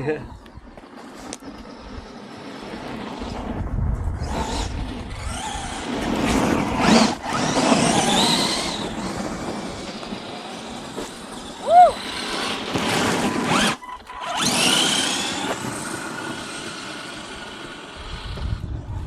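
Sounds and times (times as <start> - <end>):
electric motors whining: 0.7 - 19.0
wind rumble on microphone: 2.8 - 10.1, 17.9 - 19.0
tyres churning over wet ground: 4.2 - 18.2.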